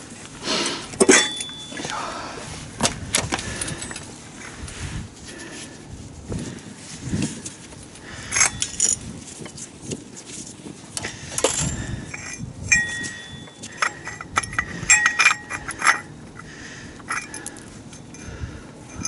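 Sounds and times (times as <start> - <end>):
metal tools clinking and knocking: 1.0 - 2.0, 3.5 - 4.1, 8.2 - 9.0, 11.0 - 16.4, 17.0 - 18.3
short ringing metallic tones: 1.0 - 2.0, 11.4 - 16.2.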